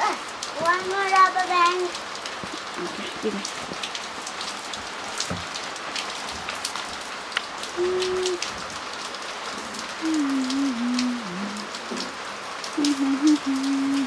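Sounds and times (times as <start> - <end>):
heavy rain pattering: 0.0 - 14.0
person humming: 7.7 - 8.5, 9.8 - 14.0.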